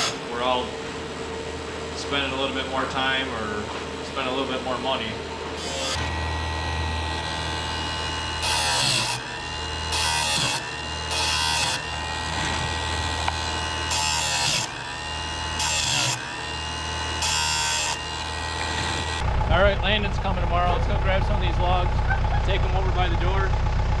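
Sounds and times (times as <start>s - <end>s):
motor buzzing hum: 4.8s - 22.8s.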